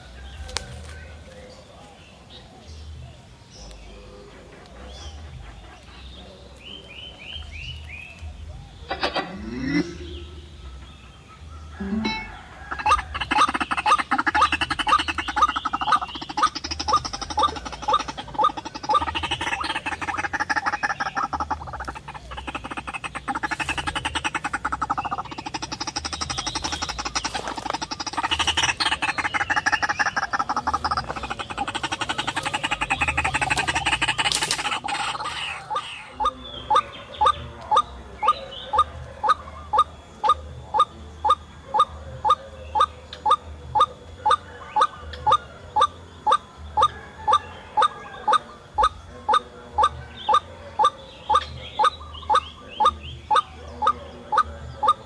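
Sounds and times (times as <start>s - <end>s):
harsh croaking bird calls: 0.0s - 55.0s
repeated sharp bird call: 3.2s - 55.0s.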